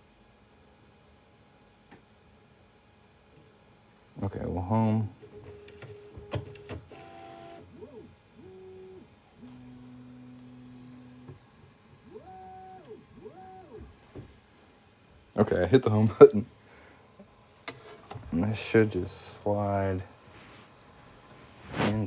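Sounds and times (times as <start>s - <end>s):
printer clicks: 5.5s - 7.8s.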